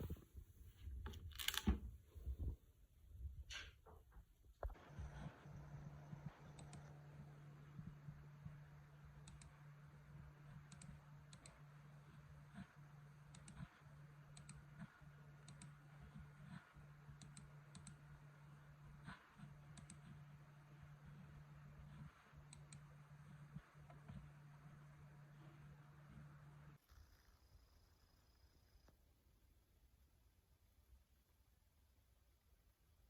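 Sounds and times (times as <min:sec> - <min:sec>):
steady low hum: 0:04.6 - 0:29.1.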